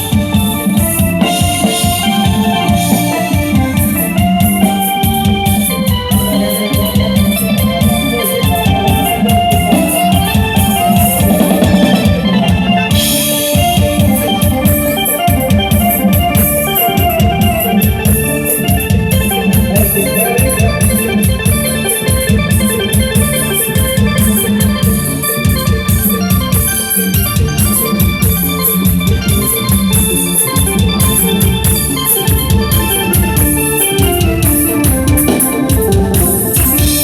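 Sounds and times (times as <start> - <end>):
electronic keyboard melody: 0.0 - 37.0
fast drum beat: 0.0 - 37.0
procession music over loudspeakers: 0.0 - 37.0.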